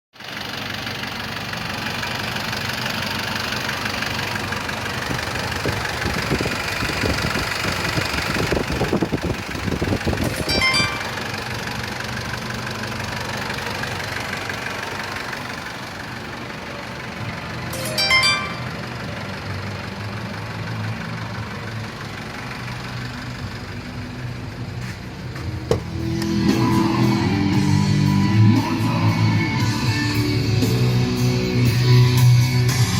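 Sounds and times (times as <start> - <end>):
diesel engine idling with knock: 0.2 - 32.9
short high tones: 10.3 - 11.3, 17.7 - 19.0.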